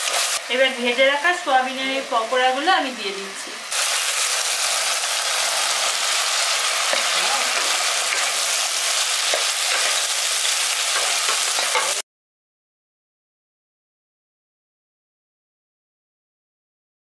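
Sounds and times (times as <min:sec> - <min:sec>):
sauce sizzling in a frying pan: 0:00.0 - 0:12.0.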